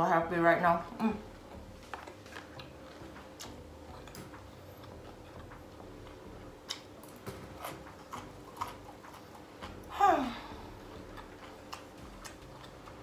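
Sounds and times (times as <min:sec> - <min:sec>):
chewing clicks and smacks: 0:01.9 - 0:09.9, 0:11.1 - 0:13.0.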